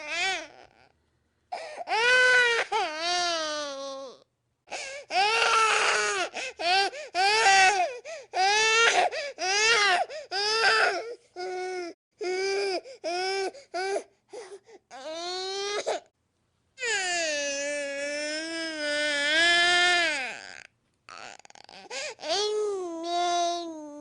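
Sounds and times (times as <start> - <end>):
infant crying: 0.0 - 0.9, 1.5 - 16.1, 16.8 - 24.0
infant whimpering: 4.8 - 16.0, 19.8 - 24.0.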